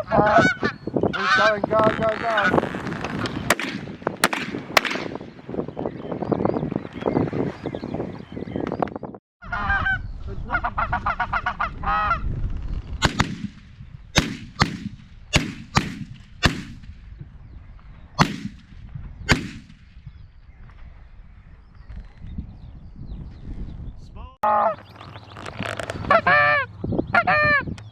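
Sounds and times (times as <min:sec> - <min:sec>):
geese honking: 0:00.0 - 0:02.6, 0:24.4 - 0:25.0, 0:25.6 - 0:27.7
shotgun shots booming: 0:03.4 - 0:05.4, 0:13.0 - 0:17.1, 0:18.2 - 0:20.0.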